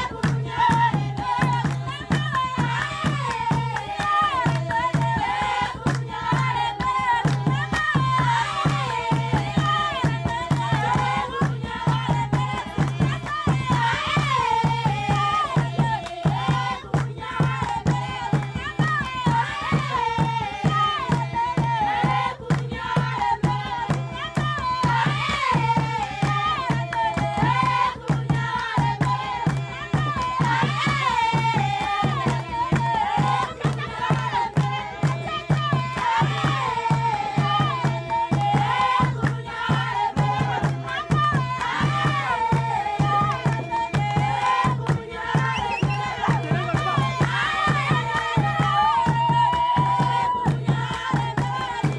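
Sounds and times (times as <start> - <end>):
drumming with rattles: 0.0 - 51.9
group of voices singing: 0.0 - 51.9.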